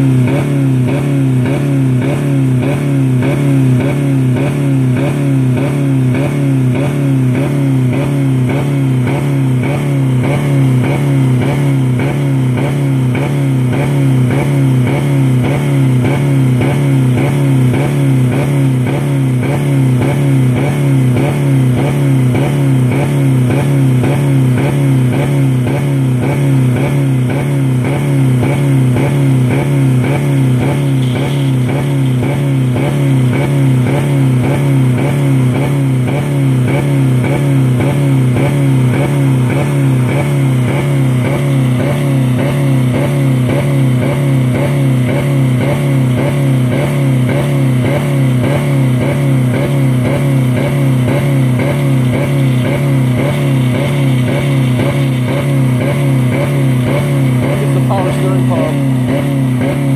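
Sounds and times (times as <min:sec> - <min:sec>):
car engine at high rpm: 0:00.0 - 0:59.9.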